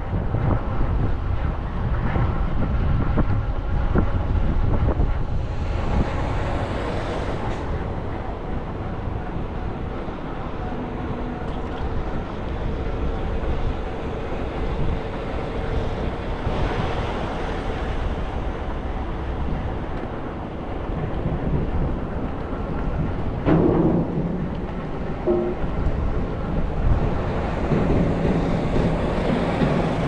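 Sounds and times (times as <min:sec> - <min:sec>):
bus road and motor rumble: 0:00.0 - 0:30.0.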